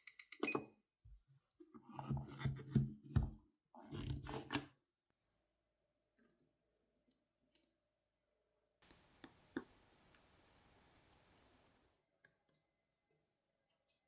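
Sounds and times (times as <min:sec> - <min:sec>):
faint steady hiss: 0:08.8 - 0:12.1.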